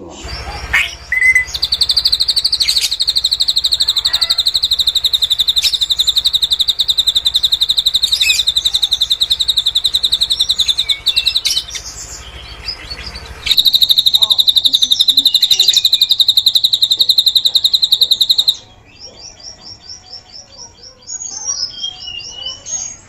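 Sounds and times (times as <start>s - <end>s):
bird singing high trill: 0.1s - 23.0s.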